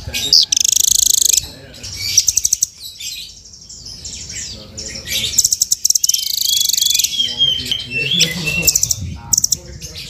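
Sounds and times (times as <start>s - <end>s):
bird trilling and chirping: 0.0s - 10.0s.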